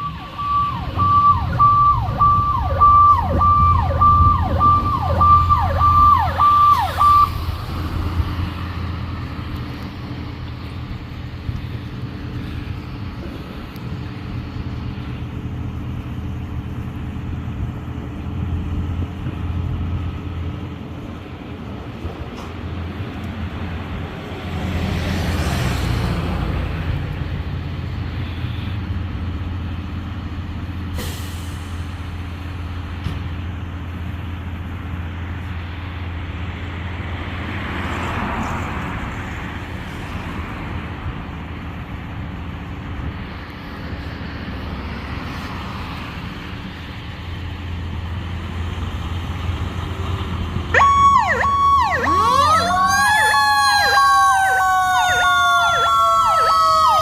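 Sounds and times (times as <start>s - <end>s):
electronic emergency siren: 0.0s - 7.4s, 50.7s - 57.0s
engine hum and road noise: 0.0s - 57.0s.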